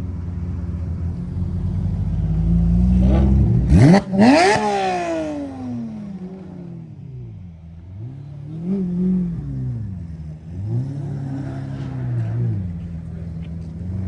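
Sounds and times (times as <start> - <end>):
car engine revving: 1.0 - 6.9.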